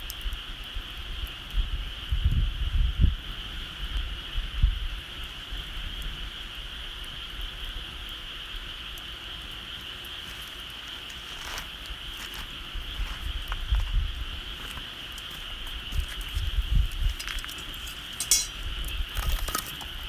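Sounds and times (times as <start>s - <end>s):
bonfire crackling: 7.0s - 20.0s.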